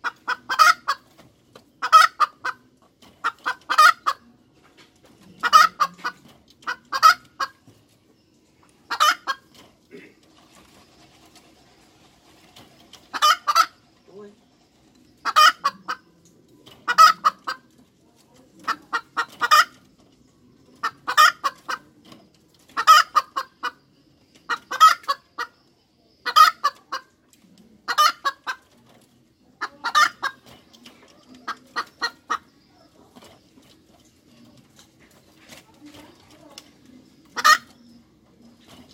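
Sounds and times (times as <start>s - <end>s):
hen cackling: 0.0s - 1.1s, 1.8s - 4.3s, 5.4s - 7.6s, 8.9s - 10.1s, 13.1s - 13.8s, 15.2s - 16.1s, 16.8s - 17.7s, 20.8s - 21.8s, 22.7s - 23.8s, 24.5s - 25.6s, 26.2s - 27.2s, 27.8s - 28.7s, 29.5s - 30.4s, 37.2s - 38.0s.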